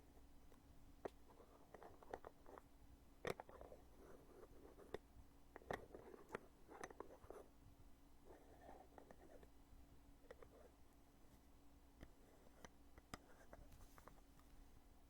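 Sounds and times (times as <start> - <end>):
soft handling rustles: 13.5 - 14.8.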